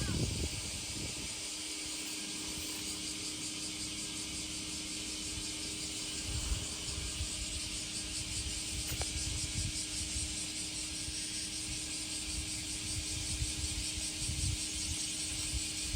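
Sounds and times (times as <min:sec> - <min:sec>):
low wind rumble: 0:00.0 - 0:01.6, 0:06.3 - 0:15.9
high hiss: 0:00.0 - 0:15.9.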